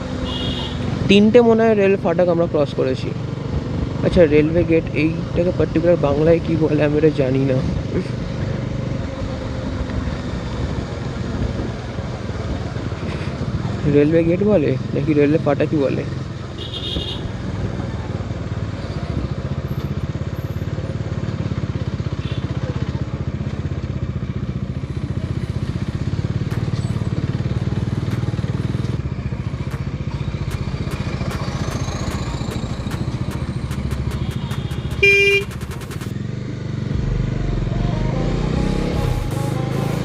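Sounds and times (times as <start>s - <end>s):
motorcycle engine running: 0.0s - 40.0s
horn honk: 0.2s - 1.0s, 16.6s - 17.4s, 33.5s - 36.1s.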